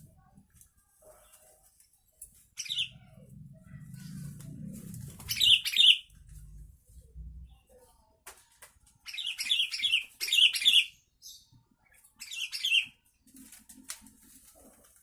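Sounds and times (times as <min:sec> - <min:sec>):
bulbul singing: 0:05.3 - 0:06.1.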